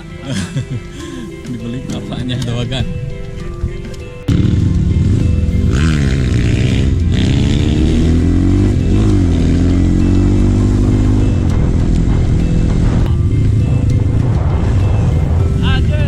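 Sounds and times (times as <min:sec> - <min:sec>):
motorcycle engine revving: 0:03.8 - 0:16.0.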